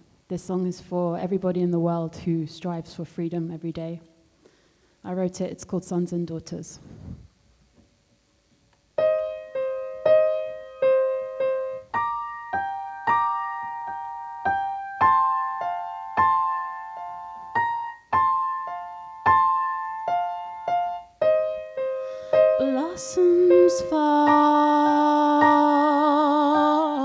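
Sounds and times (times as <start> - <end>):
solo piano chords: 9.0 - 27.0.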